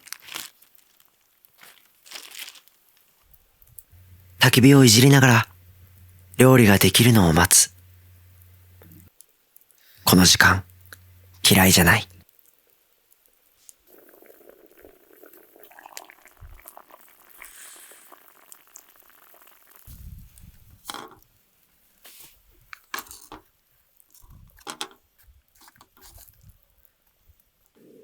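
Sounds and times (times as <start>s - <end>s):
food bubbling in a pot: 4.0s - 9.1s, 10.1s - 12.1s, 13.7s - 20.8s.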